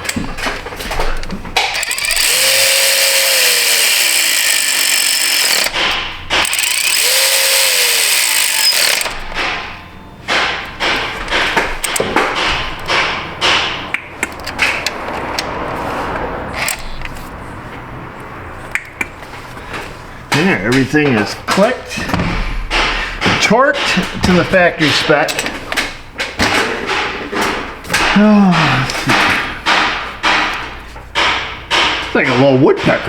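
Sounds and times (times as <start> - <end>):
hand tools clicking and knocking: 0.0 - 9.7, 10.3 - 15.7, 19.7 - 33.0
cordless power tool whining: 1.6 - 5.8, 6.4 - 9.2.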